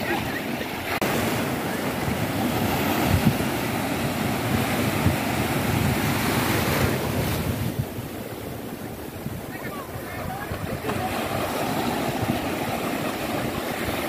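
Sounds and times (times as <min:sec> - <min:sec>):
ocean surf breaking: 0:00.0 - 0:14.0
wind rumbling on microphone: 0:00.0 - 0:14.0.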